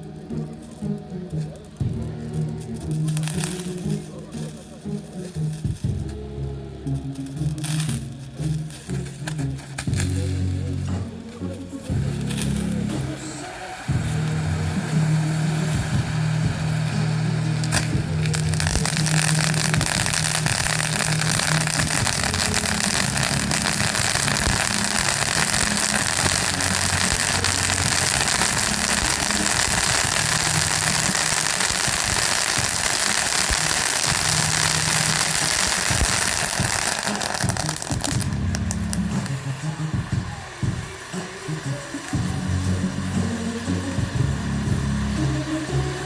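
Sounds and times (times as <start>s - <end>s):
fireworks crackling: 0.0s - 46.0s.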